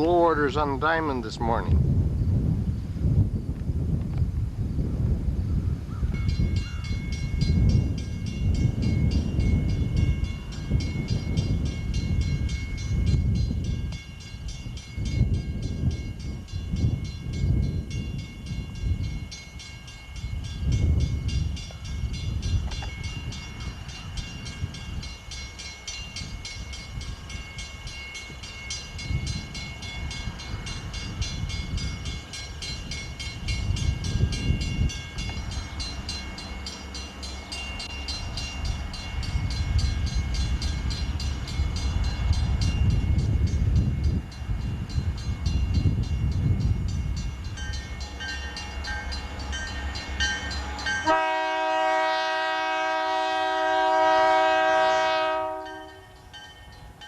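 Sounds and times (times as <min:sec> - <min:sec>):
freight train rumbling: 0:00.0 - 0:57.0
train wheel clicks: 0:22.5 - 0:24.0
train horn chord: 0:50.6 - 0:56.2.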